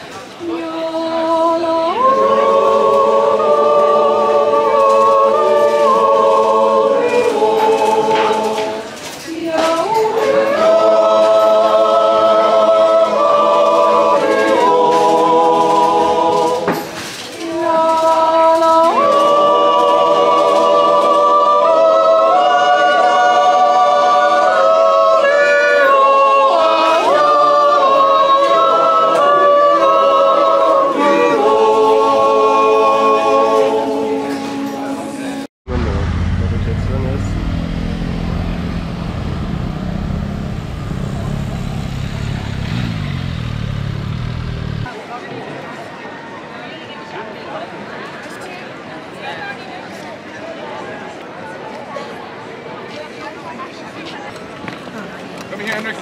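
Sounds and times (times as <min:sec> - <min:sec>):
yodel choir singing a cappella: 0:00.0 - 0:35.5, 0:37.7 - 0:44.8.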